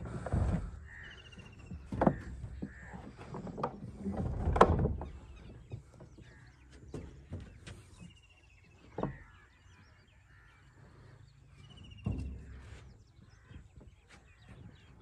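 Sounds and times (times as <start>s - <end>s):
knocks and rustles: 0.0s - 8.2s
birds calling: 0.0s - 15.0s.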